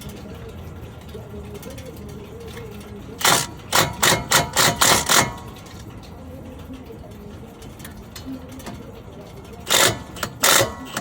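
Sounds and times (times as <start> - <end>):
impact wrench bursts: 3.2 - 5.8, 9.7 - 11.0.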